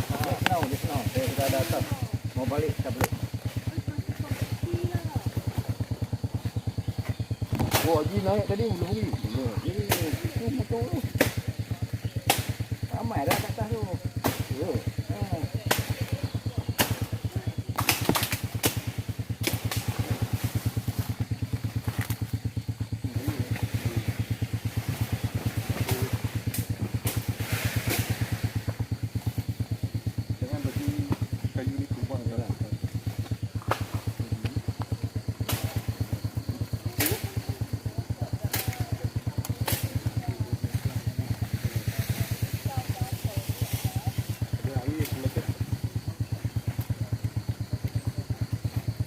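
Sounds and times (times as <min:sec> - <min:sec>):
motorcycle engine idling: 0:00.0 - 0:49.0
sharp clicks: 0:16.8 - 0:19.9, 0:38.5 - 0:38.8, 0:39.4 - 0:40.1.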